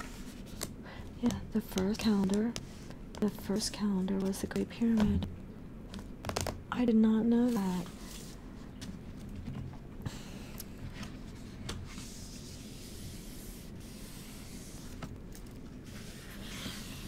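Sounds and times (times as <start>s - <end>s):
book pages rustling: 7.5s - 9.6s.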